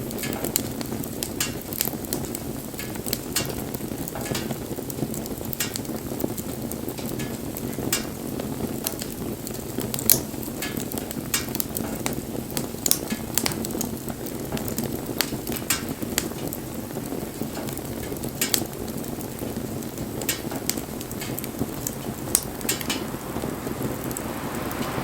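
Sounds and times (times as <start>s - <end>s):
burning wood crackling: 0.0s - 25.0s
rush of flame: 5.2s - 25.0s.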